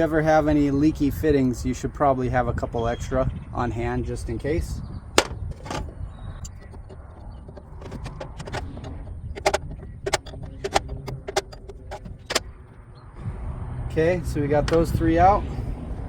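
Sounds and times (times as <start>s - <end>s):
metal fittings clinking: 5.2s - 12.8s.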